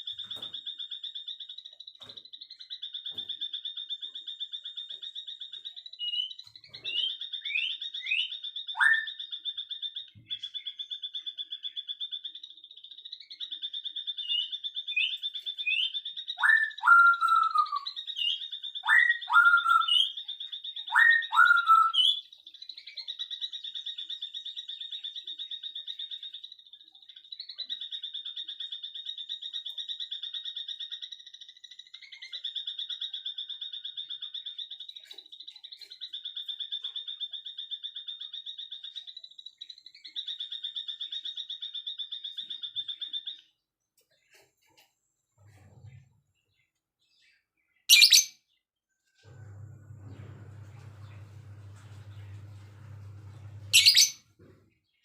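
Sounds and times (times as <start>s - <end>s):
loud sweeping bird calls: 0.0s - 26.8s, 47.8s - 48.5s, 50.2s - 54.4s
short high bird chirps: 47.9s - 48.4s, 53.7s - 54.3s.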